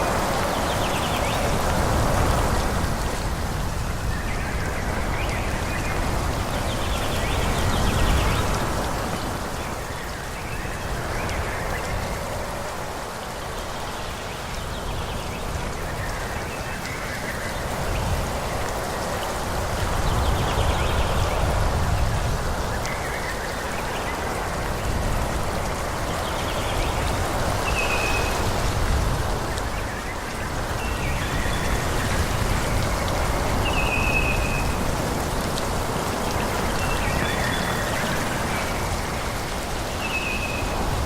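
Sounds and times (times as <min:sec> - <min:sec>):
wind through trees: 0:00.0 - 0:41.0.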